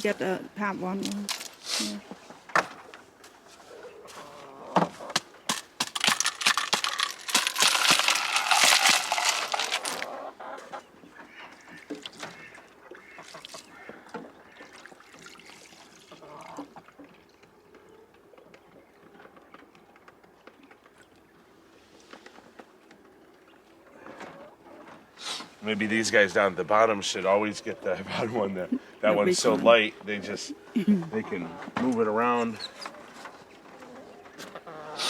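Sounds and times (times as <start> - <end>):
ducks and chickens calling: 3.6 - 5.4, 6.3 - 15.4, 16.0 - 19.0, 27.3 - 31.8, 32.4 - 35.0
water bowls clattering: 4.9 - 10.3.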